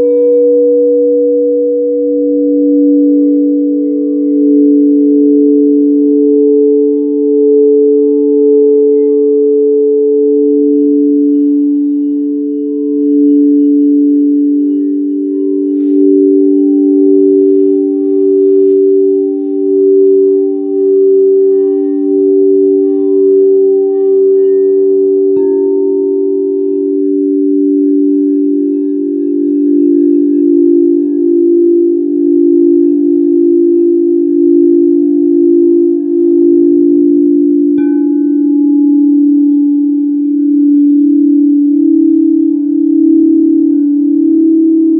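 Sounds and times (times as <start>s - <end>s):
singing bowl struck: 0.0s - 44.9s
singing bowls ringing: 0.0s - 44.9s.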